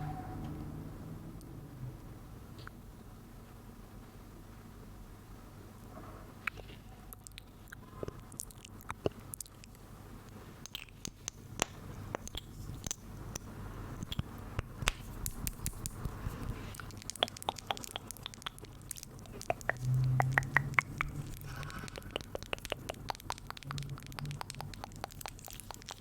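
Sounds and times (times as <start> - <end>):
crisp clicks and crackles: 7.2 - 26.0.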